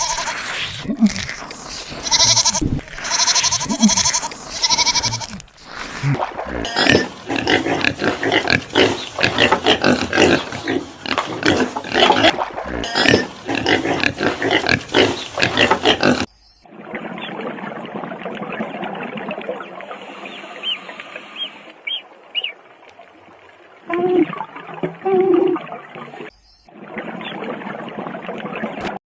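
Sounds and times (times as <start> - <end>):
quavering bleats: 0.0 - 0.4, 1.9 - 5.4
pig grunting and squealing: 0.0 - 16.3.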